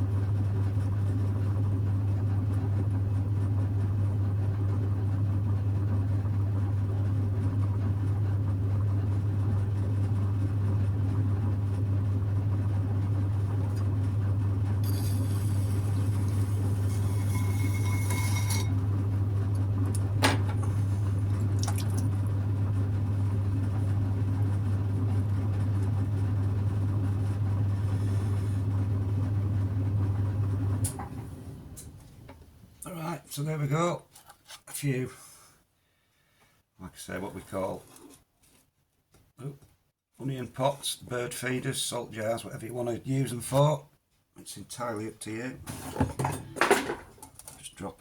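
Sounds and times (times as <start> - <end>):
potter's wheel motor humming: 1.8 - 31.1.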